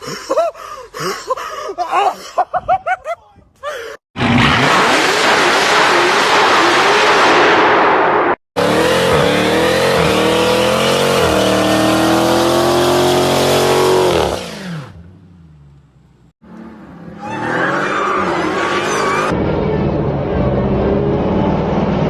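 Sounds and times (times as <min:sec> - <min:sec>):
car engine accelerating hard: 0:08.6 - 0:15.2.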